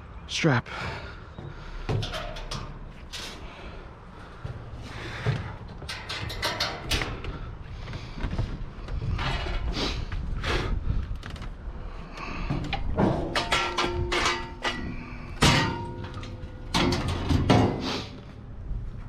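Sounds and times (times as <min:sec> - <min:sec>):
knocks clunks and scrapes: 0:00.7 - 0:19.0
steady low rumble: 0:00.8 - 0:19.0
clicks and knocks: 0:05.2 - 0:09.7, 0:12.5 - 0:17.8.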